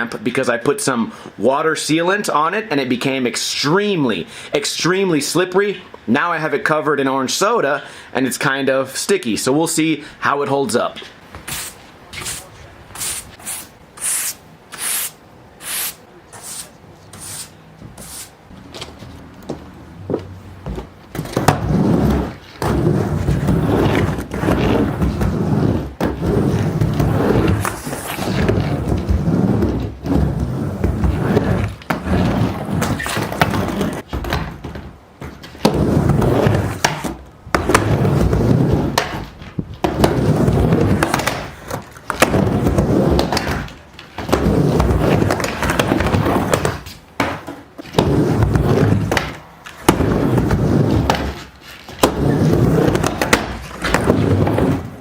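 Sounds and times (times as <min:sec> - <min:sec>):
skateboard wheels rolling: 0:11.1 - 0:55.0
skateboard clacks: 0:20.1 - 0:55.0.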